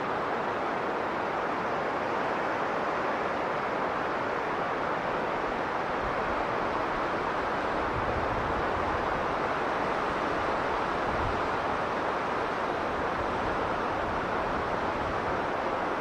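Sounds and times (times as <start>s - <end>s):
strong blizzard wind blowing: 0.0s - 16.0s.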